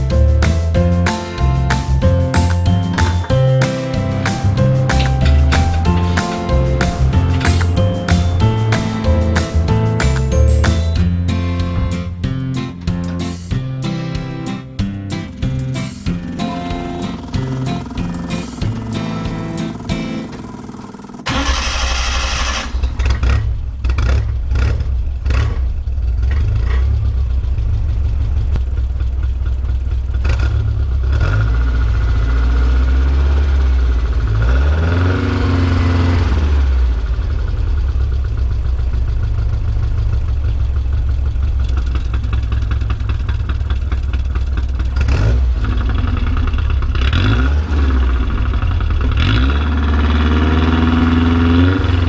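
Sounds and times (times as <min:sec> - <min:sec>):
truck engine idling: 0:00.0 - 0:31.0, 0:35.5 - 0:52.0
engine revving: 0:15.9 - 0:27.4, 0:30.2 - 0:37.2, 0:44.8 - 0:52.0.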